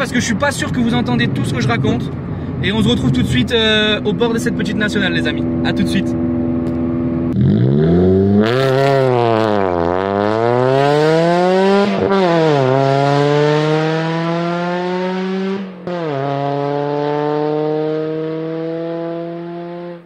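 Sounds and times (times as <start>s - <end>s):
car engine revving hard: 7.0s - 20.0s.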